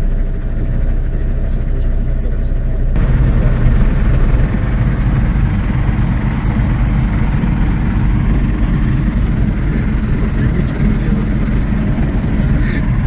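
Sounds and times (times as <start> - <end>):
light aircraft engine running: 0.0 - 13.0.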